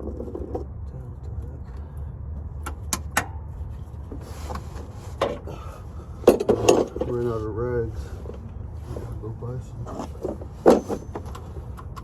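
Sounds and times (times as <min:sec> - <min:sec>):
steady low rumble: 0:00.0 - 0:12.0
short scraping rustle: 0:03.9 - 0:05.2
metal tools clinking: 0:06.3 - 0:07.2, 0:09.8 - 0:11.6.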